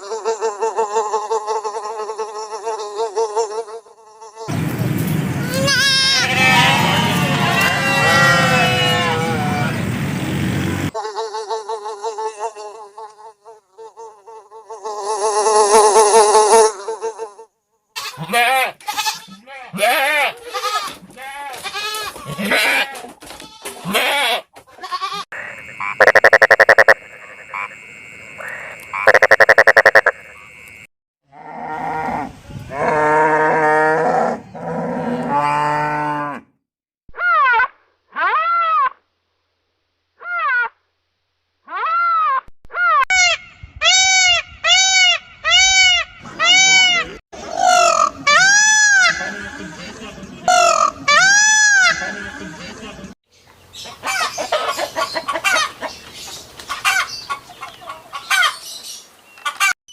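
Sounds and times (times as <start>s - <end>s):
animal calls rising and falling: 25.9s - 27.0s, 29.0s - 30.2s.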